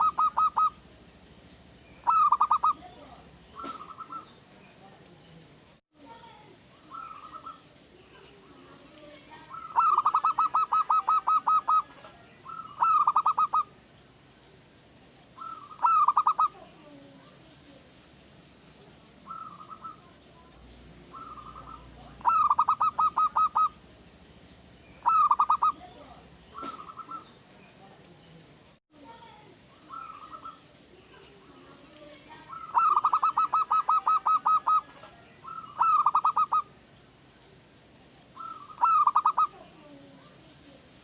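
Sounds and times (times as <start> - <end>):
dove cooing: 0.0 - 1.0, 2.0 - 4.4, 6.8 - 8.8, 9.4 - 13.8, 15.4 - 17.2, 19.3 - 20.2, 21.0 - 23.9, 25.0 - 27.4, 29.7 - 30.8, 31.5 - 36.8, 38.4 - 40.5.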